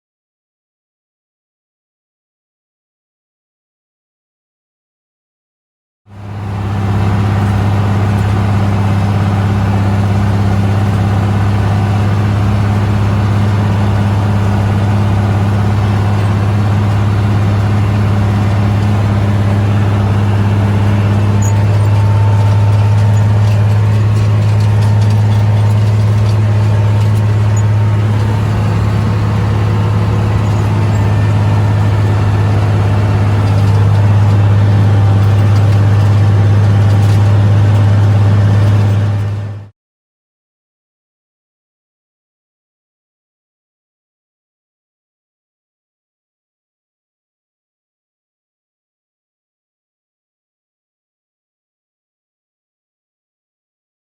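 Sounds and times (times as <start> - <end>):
tractor engine droning: 6.1 - 39.7.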